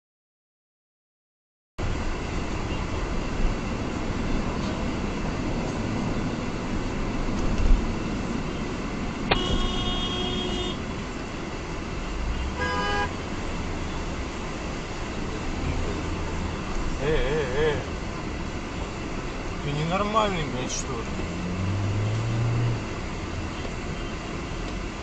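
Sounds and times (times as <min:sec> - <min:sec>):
car engine and road noise: 0:01.8 - 0:25.0
car horn honking: 0:09.3 - 0:10.9, 0:12.3 - 0:13.2.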